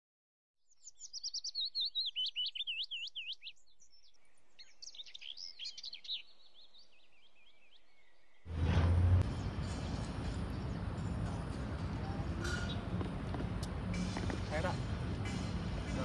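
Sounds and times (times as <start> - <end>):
small birds chirping: 0.6 - 8.5, 12.4 - 13.0.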